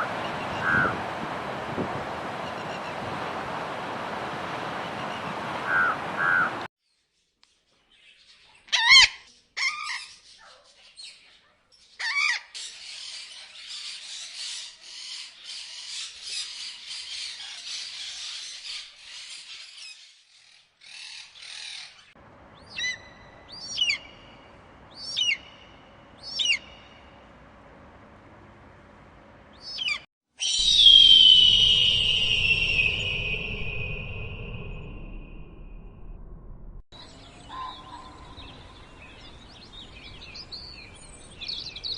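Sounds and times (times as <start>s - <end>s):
birds chattering: 0.0s - 1.6s
downward-sliding whistled calls: 0.0s - 6.7s, 29.6s - 35.3s
harsh bird calls: 0.0s - 6.7s, 20.8s - 27.2s, 37.0s - 41.9s.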